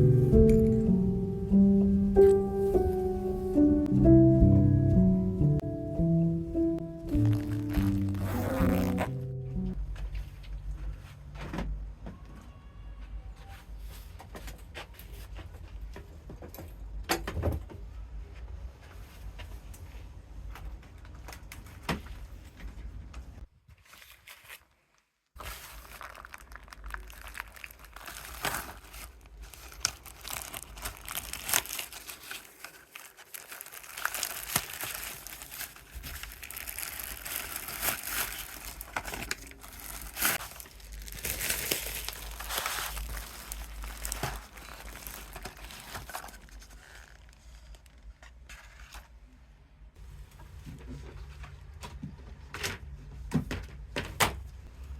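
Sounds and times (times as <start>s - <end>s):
packaging crinkling: 7.1s - 9.3s, 23.8s - 48.2s.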